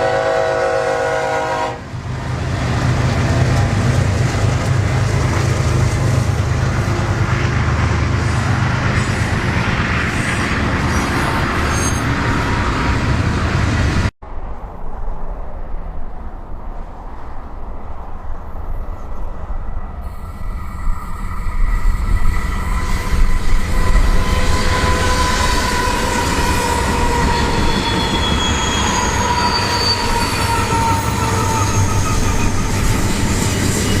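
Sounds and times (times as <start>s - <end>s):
train rumbling by: 0.0s - 34.0s
train wheels squealing: 10.2s - 12.6s, 20.0s - 34.0s.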